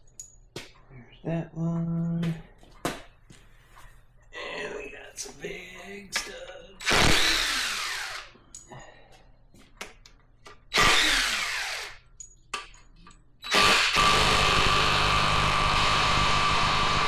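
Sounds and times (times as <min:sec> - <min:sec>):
power driver spinning: 0:06.8 - 0:08.3.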